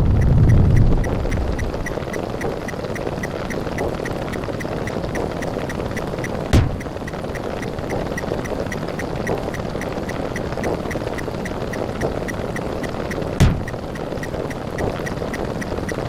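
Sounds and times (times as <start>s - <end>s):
buzzing drone: 0.0s - 14.6s
light ticks: 0.0s - 16.0s
sudden thump: 6.6s - 6.8s, 13.4s - 13.8s.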